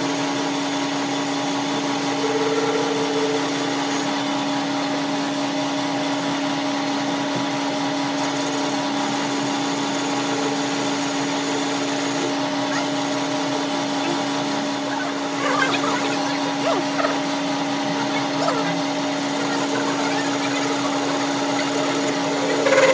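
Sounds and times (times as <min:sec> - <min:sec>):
wavering voices or calls: 0:01.8 - 0:04.2, 0:12.2 - 0:22.9
motor humming: 0:08.6 - 0:22.9.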